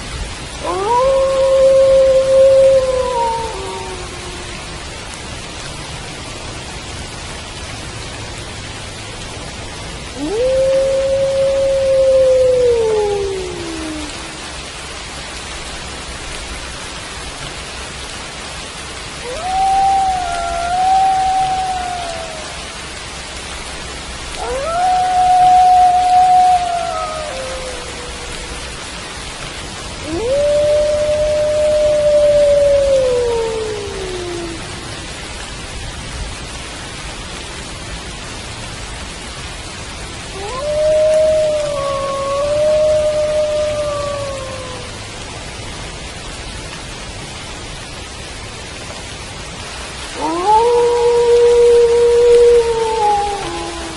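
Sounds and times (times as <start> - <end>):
steady rain: 0.0 - 53.9
wolf howling: 0.6 - 4.9, 10.1 - 14.6, 19.2 - 22.8, 24.3 - 29.0, 30.0 - 35.2, 40.3 - 45.1, 50.1 - 53.9.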